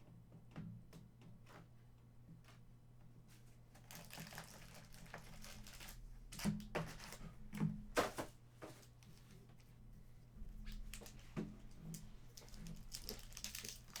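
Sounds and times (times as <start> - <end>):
foil wrapper crinkling and tearing: 3.8 - 6.0, 12.4 - 14.0.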